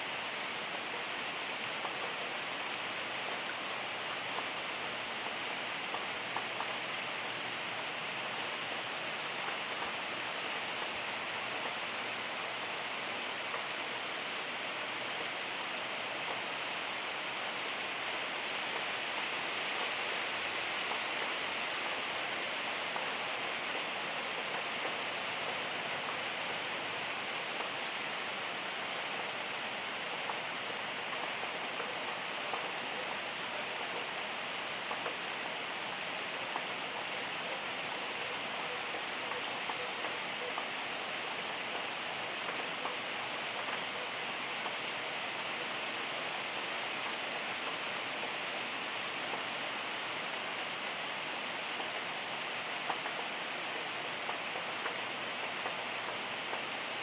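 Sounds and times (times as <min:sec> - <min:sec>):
steady rainfall hiss: 0:00.0 - 0:57.0
raindrop ticks: 0:03.2 - 0:12.3, 0:20.8 - 0:48.4, 0:52.6 - 0:56.8.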